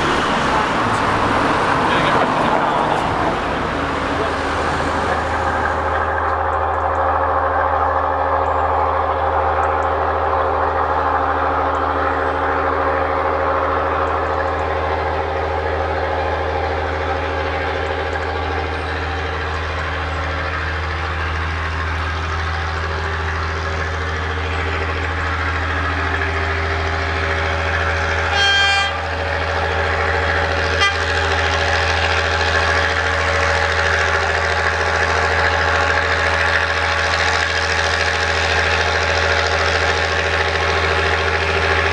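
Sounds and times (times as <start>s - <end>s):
locomotive running: 0.0s - 41.9s
train whistle toot: 28.2s - 29.2s, 30.7s - 31.4s.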